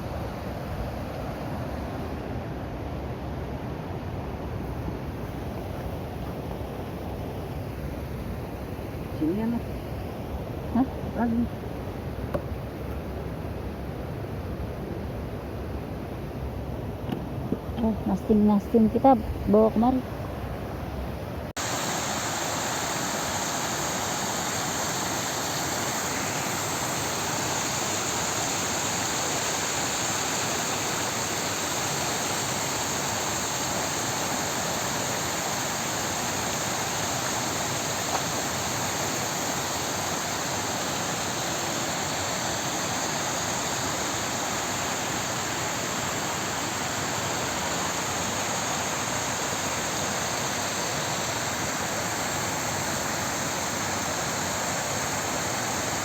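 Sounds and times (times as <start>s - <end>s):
water rushing over waterfall: 21.6s - 56.0s.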